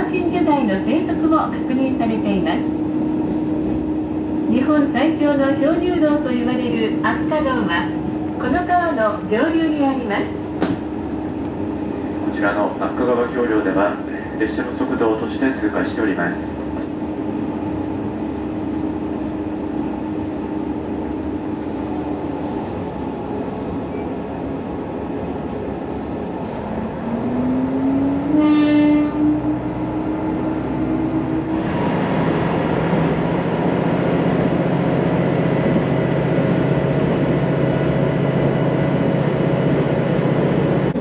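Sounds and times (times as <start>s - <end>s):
diesel railcar engine running: 0.0s - 41.0s
train horn blast: 27.9s - 29.7s.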